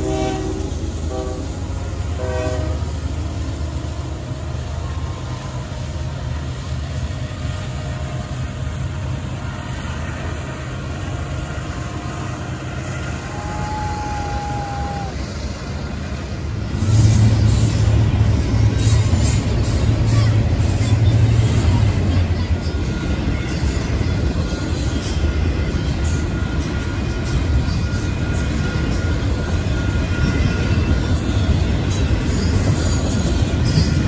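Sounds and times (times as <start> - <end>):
locomotive horn blast: 0.0 - 3.1
freight cars rumbling and clattering: 2.8 - 34.0.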